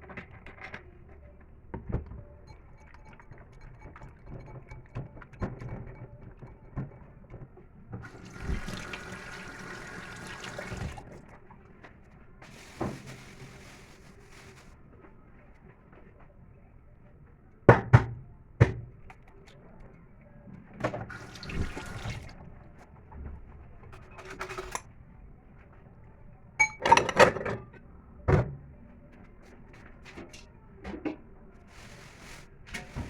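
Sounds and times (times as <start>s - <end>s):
dishes and utensils clattering: 2.4s - 7.0s, 26.6s - 27.7s.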